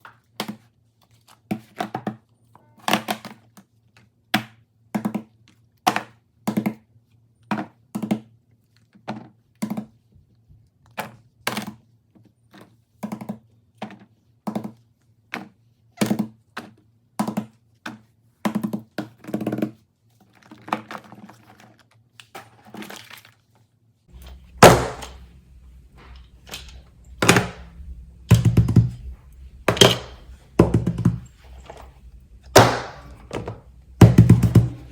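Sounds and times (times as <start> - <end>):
fidget toys knocking and popping: 4.4 - 6.8, 13.0 - 19.8, 24.1 - 34.9
faint low hum: 24.1 - 34.9.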